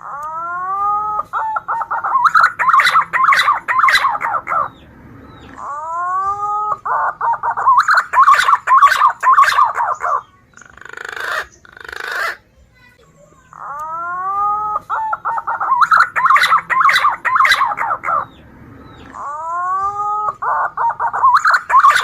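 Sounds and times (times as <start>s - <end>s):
pigeon whistled song: 0.1s - 12.4s, 13.8s - 22.0s
rapid warbling notes: 2.0s - 6.7s, 15.6s - 20.2s.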